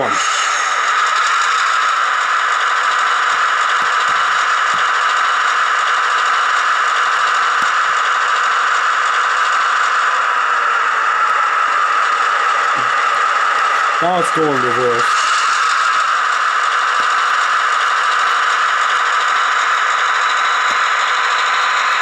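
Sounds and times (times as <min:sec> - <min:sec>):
model train diesel engine sound: 0:00.0 - 0:22.0.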